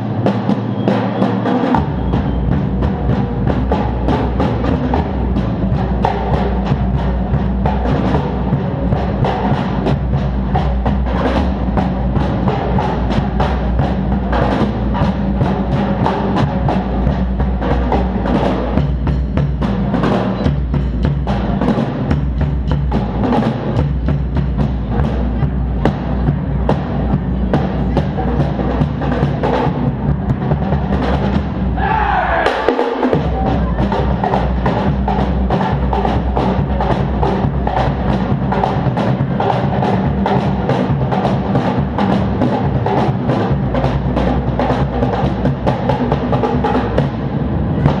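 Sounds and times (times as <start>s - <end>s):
drums played quickly: 0.0s - 48.0s
deep bass: 1.7s - 32.2s.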